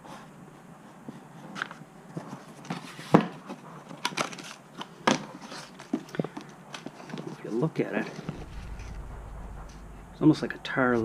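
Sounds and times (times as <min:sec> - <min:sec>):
mat sheets crinkling and rustling: 0:01.4 - 0:07.4.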